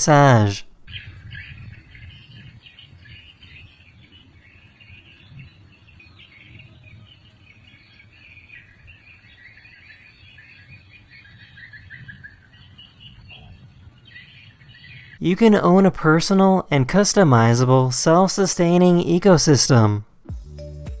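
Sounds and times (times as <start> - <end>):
small birds chirping: 0.0 - 15.2.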